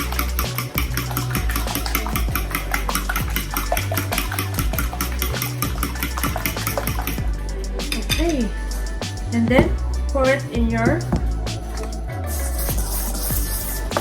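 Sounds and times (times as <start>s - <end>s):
whisk clinking against bowl: 0.0s - 7.2s.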